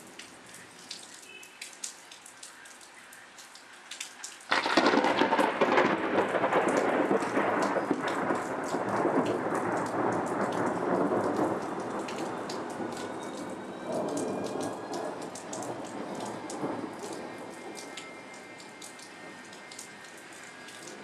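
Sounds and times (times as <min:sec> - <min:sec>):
rain pattering: 0:00.0 - 0:21.0
thunderclap rumbling: 0:04.5 - 0:17.9.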